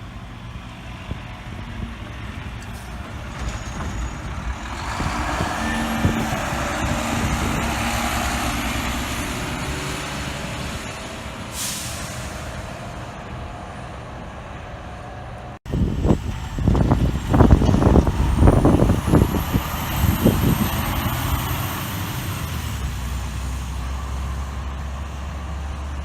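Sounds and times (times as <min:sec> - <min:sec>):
truck passing by: 0:00.0 - 0:26.0
air brakes hissing: 0:11.3 - 0:13.0.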